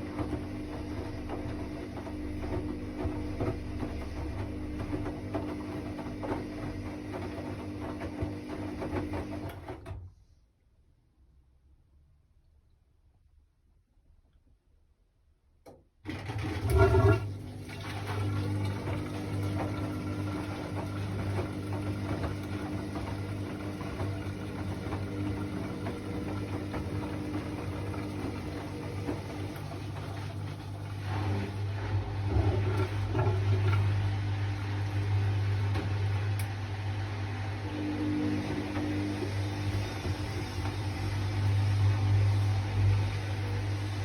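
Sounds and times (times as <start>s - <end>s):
water sloshing in drum: 0.0s - 9.4s, 16.4s - 36.5s
washing machine motor hum: 0.0s - 10.3s, 16.0s - 44.0s.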